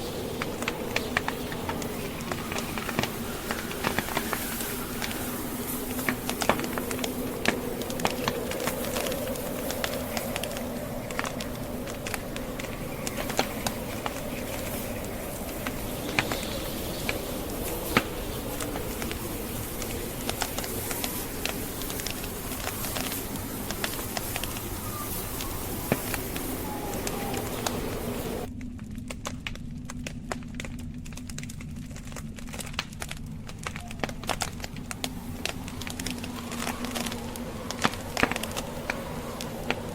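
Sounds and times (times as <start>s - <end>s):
blizzard wind rushing: 0.0s - 28.8s, 30.1s - 39.9s
wood fire crackling: 0.0s - 39.9s.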